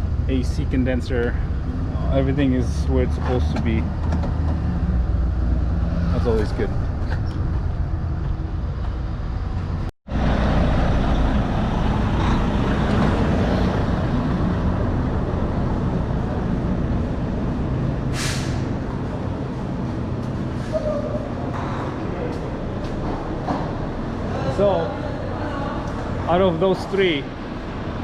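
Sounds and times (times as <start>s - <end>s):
air hiss: 18.1s - 18.7s.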